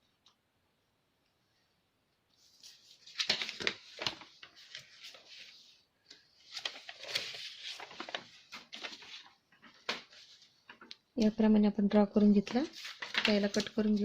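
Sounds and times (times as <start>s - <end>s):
paper rustling and scraping: 2.4s - 10.9s, 12.5s - 14.0s.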